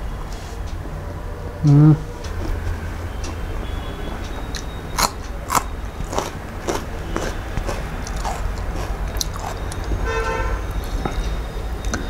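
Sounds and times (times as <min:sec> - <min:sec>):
chewing crunch: 0:04.5 - 0:10.1
crunchy bites into chili: 0:04.6 - 0:10.0.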